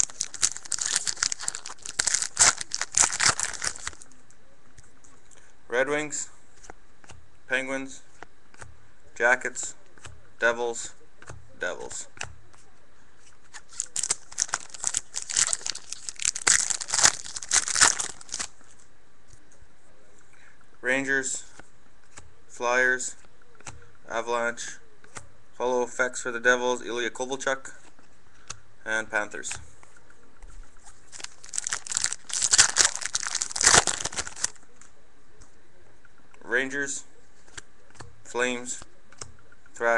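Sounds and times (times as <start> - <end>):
wrapper crinkling and tearing: 0.0 - 4.1, 13.6 - 18.6, 31.1 - 34.6.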